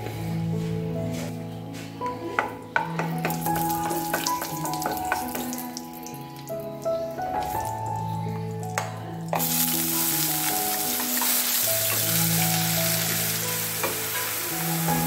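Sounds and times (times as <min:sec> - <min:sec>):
background music with held notes: 0:00.0 - 0:15.0
paste sizzling in hot oil: 0:09.4 - 0:15.0.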